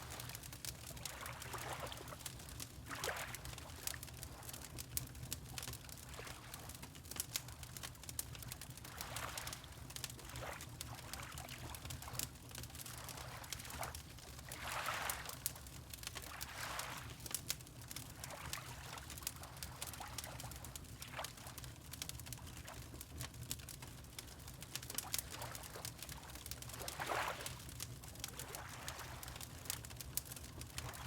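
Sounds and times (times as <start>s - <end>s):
fireplace crackling: 0.2s - 0.8s, 3.5s - 5.8s, 6.6s - 9.0s, 20.7s - 31.0s
water lapping: 14.5s - 15.3s, 16.3s - 17.1s, 26.7s - 27.6s.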